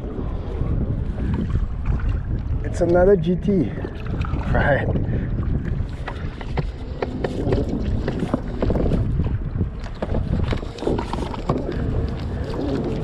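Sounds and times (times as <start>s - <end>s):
water around kayak: 0.0s - 13.0s
wind rumbling on microphone: 0.0s - 13.0s
clicks and knocks on hull: 5.9s - 13.0s.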